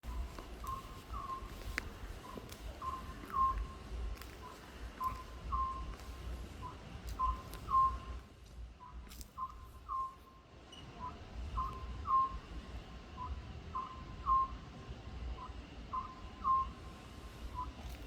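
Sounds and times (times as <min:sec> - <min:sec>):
owl calling whistled notes: 0:00.1 - 0:03.8, 0:04.4 - 0:06.0, 0:06.6 - 0:08.2, 0:08.8 - 0:10.3, 0:11.0 - 0:12.5, 0:13.2 - 0:14.6, 0:15.4 - 0:16.9.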